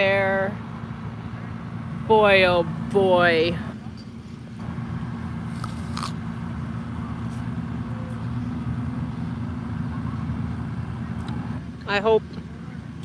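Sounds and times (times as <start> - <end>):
low motor hum: 0.0 - 13.0
crunching and chewing apple: 5.4 - 6.4.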